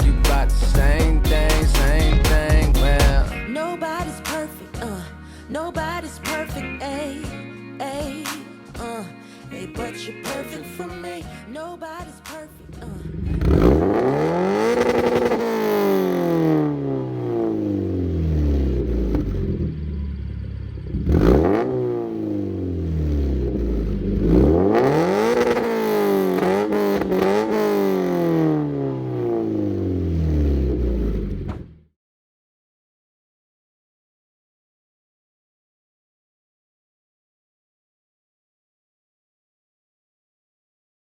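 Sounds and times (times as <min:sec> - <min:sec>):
car engine revving: 0:12.7 - 0:31.8.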